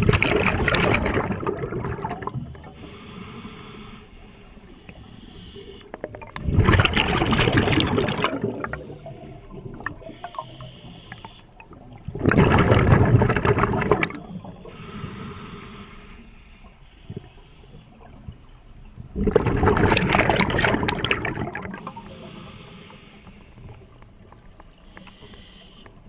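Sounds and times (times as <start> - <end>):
exhaled bubbles rushing: 0.0 - 2.7, 6.0 - 10.1, 11.6 - 14.5, 19.1 - 22.0
regulator inhale hiss: 2.7 - 6.0, 8.8 - 11.6, 14.5 - 18.1, 21.8 - 26.0.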